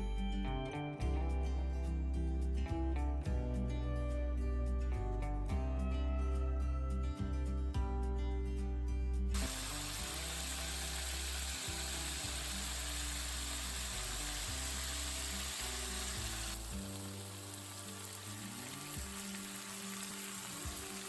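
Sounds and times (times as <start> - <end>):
background music: 0.0 - 21.0
food sizzling in a pan: 9.4 - 12.5, 15.6 - 21.0.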